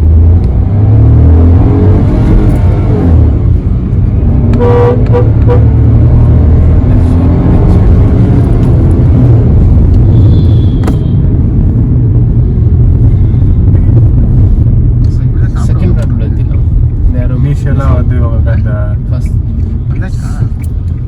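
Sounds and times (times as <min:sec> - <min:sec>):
car engine and road noise: 0:00.0 - 0:21.0
car horn toots: 0:04.5 - 0:05.9.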